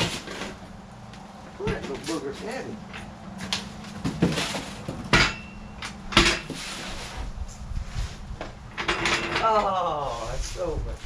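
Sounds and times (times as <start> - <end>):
metal floor jack clanking: 4.0 - 6.6, 8.7 - 9.7.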